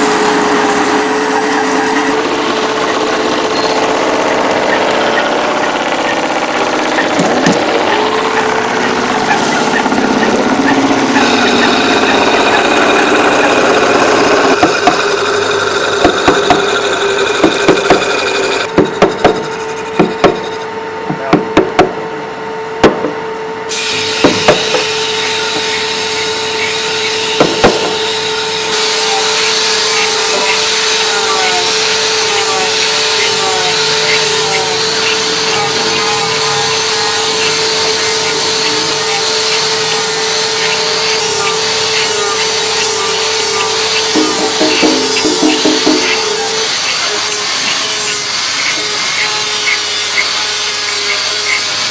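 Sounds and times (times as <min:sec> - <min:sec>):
wood sawing and rasping: 0:00.0 - 0:20.5, 0:23.9 - 0:51.9
steady humming tone: 0:00.0 - 0:51.9
sharp knocks: 0:14.5 - 0:15.1, 0:16.0 - 0:16.8, 0:17.4 - 0:20.5, 0:21.1 - 0:22.0, 0:22.8 - 0:23.2, 0:24.2 - 0:24.9, 0:27.3 - 0:28.0, 0:43.9 - 0:46.4.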